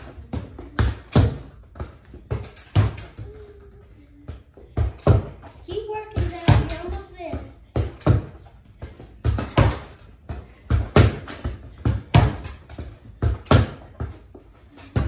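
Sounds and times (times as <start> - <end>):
ball kicked: 6.1 - 14.2
ball hitting wall: 9.2 - 10.0, 10.7 - 14.1.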